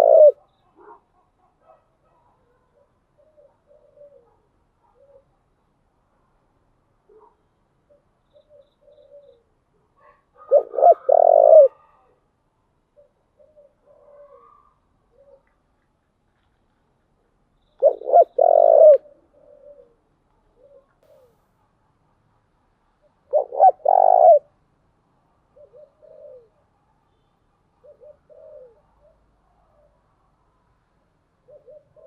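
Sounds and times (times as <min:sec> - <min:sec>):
dove cooing: 0:00.0 - 0:01.0, 0:02.6 - 0:05.4, 0:07.1 - 0:12.0, 0:13.0 - 0:15.6, 0:17.8 - 0:21.4, 0:23.2 - 0:24.6, 0:25.5 - 0:26.6, 0:27.8 - 0:30.0, 0:31.4 - 0:32.0.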